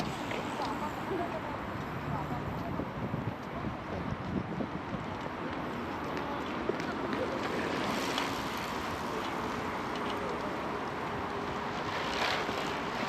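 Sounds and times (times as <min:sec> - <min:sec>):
wind on microphone: 0:00.0 - 0:05.5
steady outdoor noise: 0:00.0 - 0:13.0.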